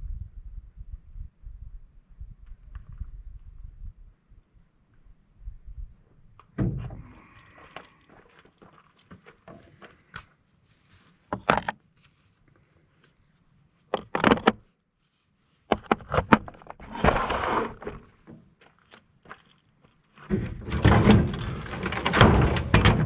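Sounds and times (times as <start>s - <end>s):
scraping rustle: 7.1s - 13.4s, 16.5s - 18.2s, 18.8s - 23.0s
metal parts and tools clattering: 18.8s - 23.0s.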